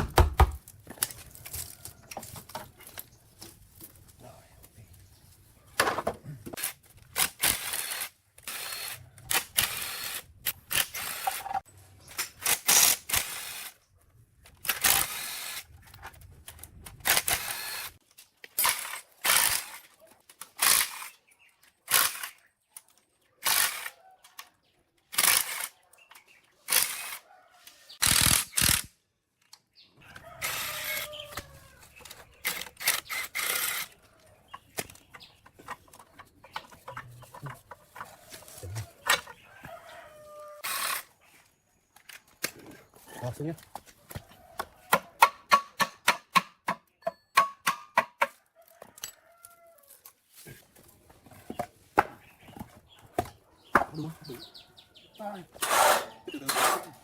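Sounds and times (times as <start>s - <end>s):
hand tools on machine parts: 55.5s - 57.0s.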